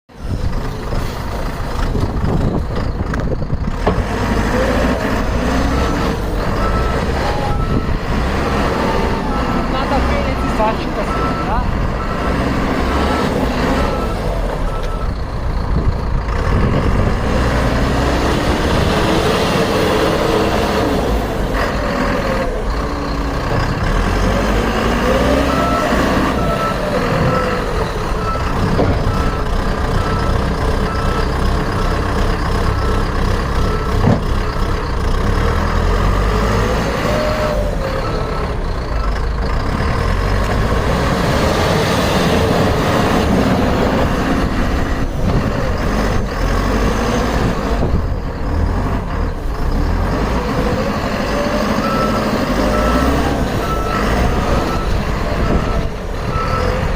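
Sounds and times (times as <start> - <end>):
diesel engine running: 0.1 - 56.9
reversing alarm beeping: 5.3 - 15.6, 24.2 - 39.4, 51.2 - 56.9.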